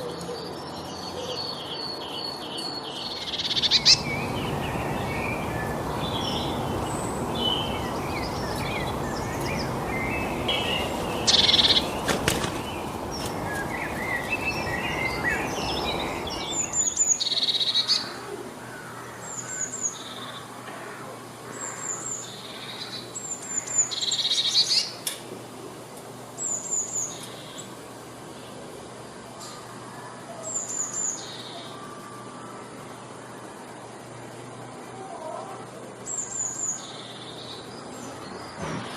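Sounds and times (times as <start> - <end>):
birds chirping and calling: 0.0 - 25.2, 25.9 - 38.9
steady rushing noise: 3.4 - 17.3.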